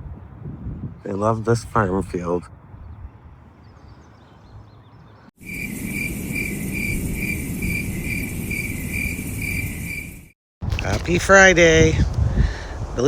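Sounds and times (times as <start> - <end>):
insect chirping: 5.4 - 10.4.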